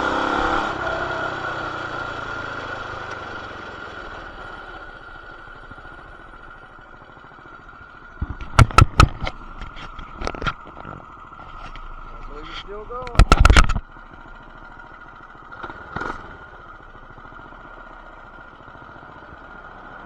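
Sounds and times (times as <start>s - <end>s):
sharp loud knocks and clatter: 8.2s - 11.0s, 13.0s - 13.9s
small motorbike engine winding down: 15.5s - 16.5s.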